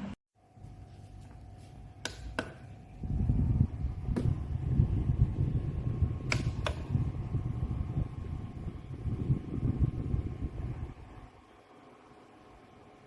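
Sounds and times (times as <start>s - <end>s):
fan blowing air on microphone: 0.8s - 11.8s
sharp clicks: 6.3s - 6.9s.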